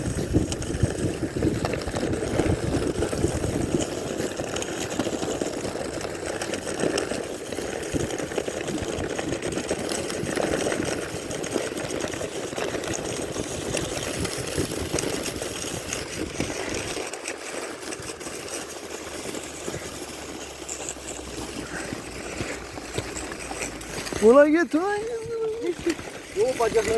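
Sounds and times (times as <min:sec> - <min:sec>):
wooden sled scraping over snow: 0:00.0 - 0:26.9.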